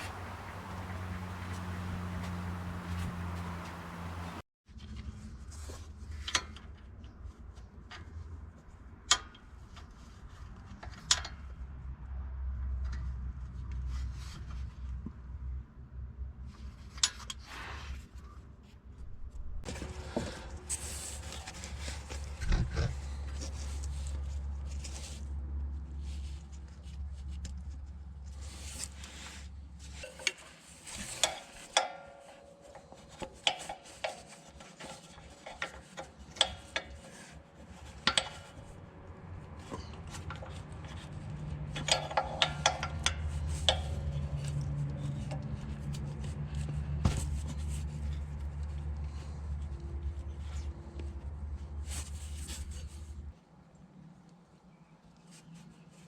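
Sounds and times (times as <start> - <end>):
hand tools clicking and scraping: 0.0 - 4.4, 28.4 - 46.2
low steady hum: 0.0 - 4.4.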